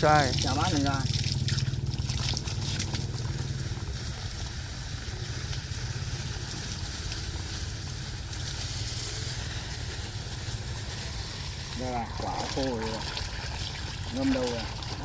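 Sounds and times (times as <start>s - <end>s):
constant hiss: 0.0s - 15.0s
small engine running: 0.0s - 15.0s.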